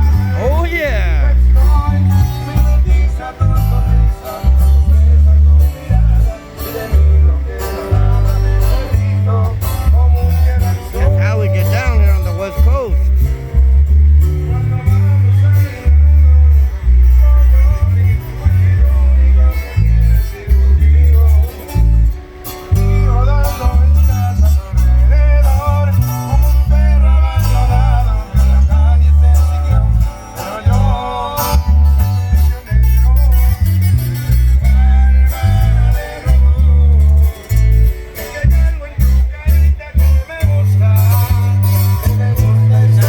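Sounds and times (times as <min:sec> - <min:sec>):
band playing with guitar: 0:00.0 - 0:43.0
deep bass notes: 0:00.0 - 0:43.0
person singing: 0:14.0 - 0:43.0.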